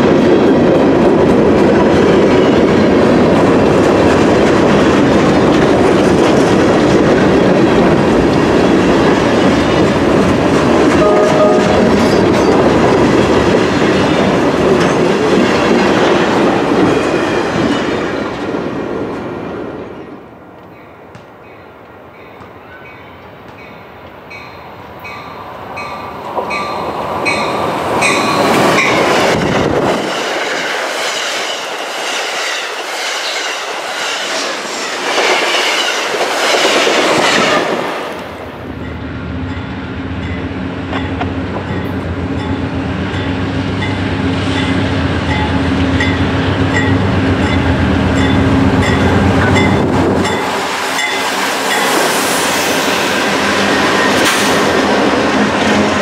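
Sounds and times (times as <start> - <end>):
diesel locomotive engines droning: 0.0 - 56.0
train wheels on rails: 0.0 - 56.0
train bell ringing: 10.9 - 12.6, 20.8 - 29.1, 38.8 - 52.1.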